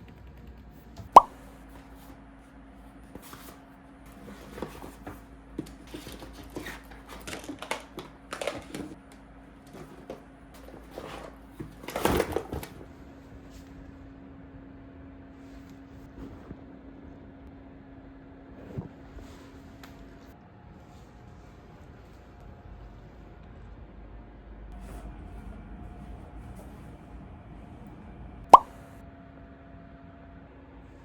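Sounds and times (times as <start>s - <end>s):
packaging rustling: 4.2s - 9.0s.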